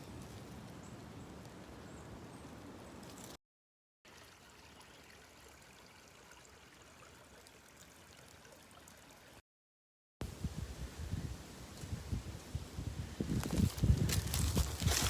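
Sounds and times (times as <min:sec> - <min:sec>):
faint outdoor hiss: 0:10.2 - 0:13.2.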